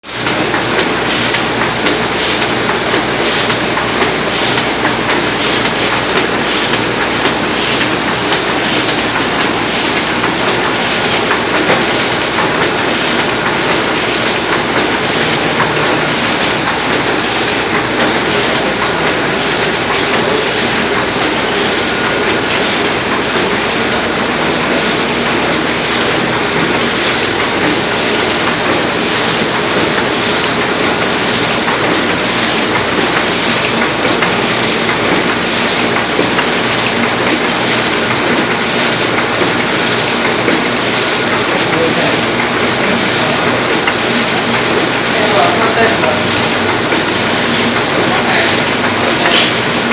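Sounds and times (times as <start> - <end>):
printing press clattering: 0.0 - 49.9.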